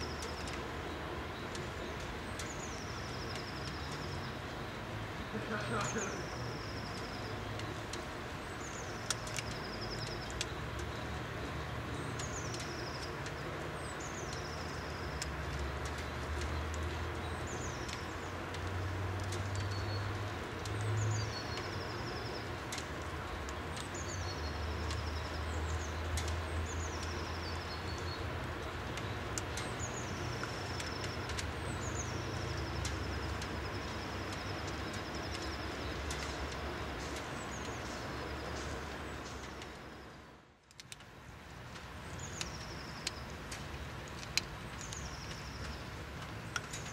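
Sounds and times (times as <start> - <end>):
songbird calling: 5.2 - 7.8.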